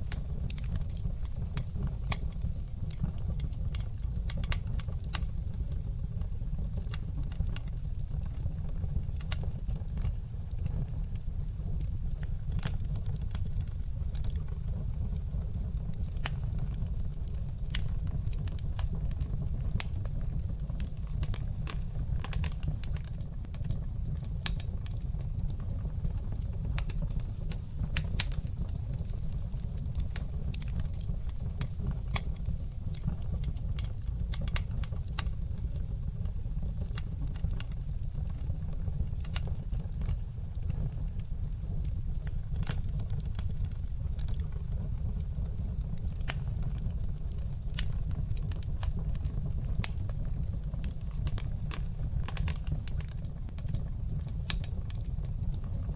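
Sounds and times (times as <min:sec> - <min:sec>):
crackles and pops of burning logs: 0:00.0 - 0:55.9
low rumble of flames: 0:00.0 - 0:55.9.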